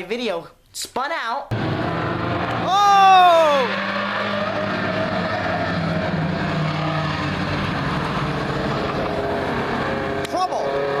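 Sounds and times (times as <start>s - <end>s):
background noise: 0.0s - 1.7s
race car engines: 1.5s - 11.0s.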